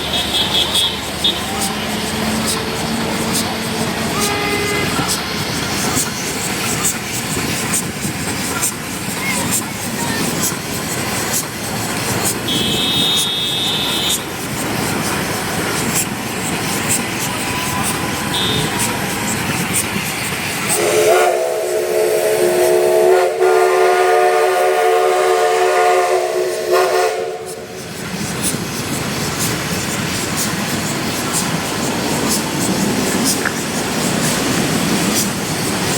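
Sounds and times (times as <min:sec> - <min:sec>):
steam locomotive hissing: 0:00.0 - 0:35.9
steam whistle chord: 0:20.8 - 0:27.6.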